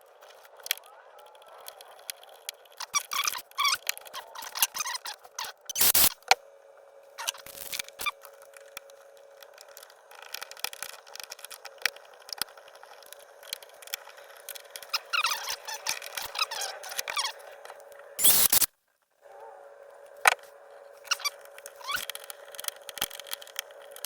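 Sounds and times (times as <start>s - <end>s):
screwdriver squeaking on screw: 2.8s - 6.1s, 14.8s - 17.5s, 18.2s - 18.7s, 21.0s - 23.4s.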